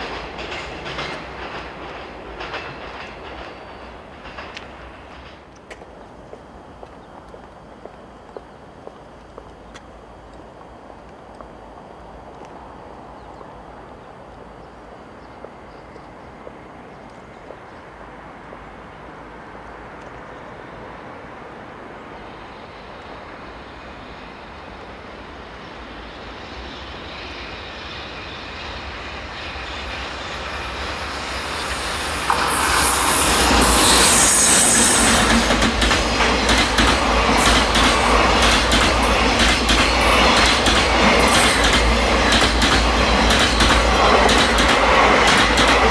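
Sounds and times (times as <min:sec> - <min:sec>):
freight train rumble: 0:00.0 - 0:45.9
wagon wheels clattering on rails: 0:35.1 - 0:45.9.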